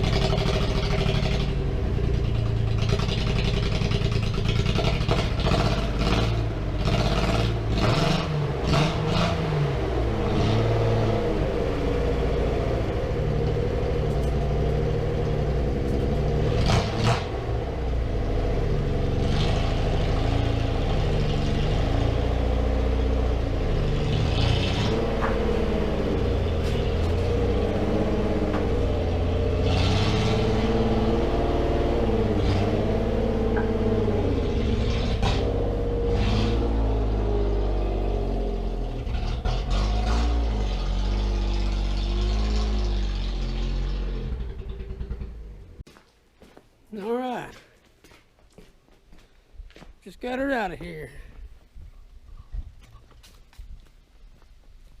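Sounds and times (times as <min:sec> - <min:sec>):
car engine revving: 0:00.0 - 0:45.8
knocks and clatters: 0:24.6 - 0:25.7, 0:33.5 - 0:34.1.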